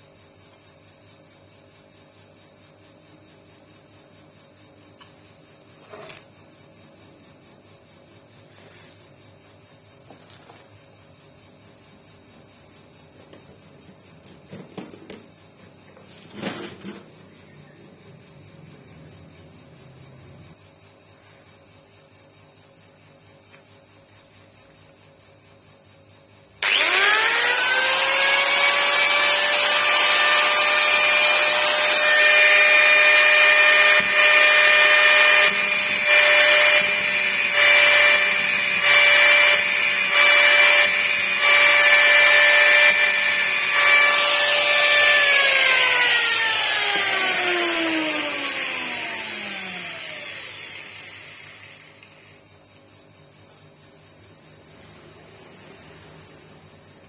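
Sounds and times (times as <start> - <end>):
power tool motor whining: 26.6 - 52.3
rasping bursts: 26.6 - 52.4.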